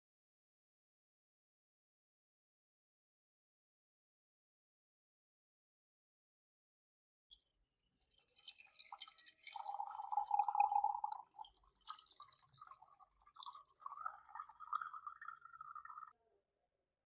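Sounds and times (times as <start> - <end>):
liquid dripping and trickling: 7.3 - 16.2.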